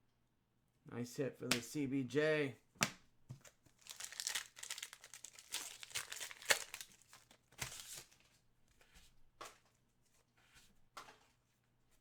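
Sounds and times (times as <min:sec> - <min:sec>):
wrappers crinkling and tearing: 0:03.4 - 0:08.2.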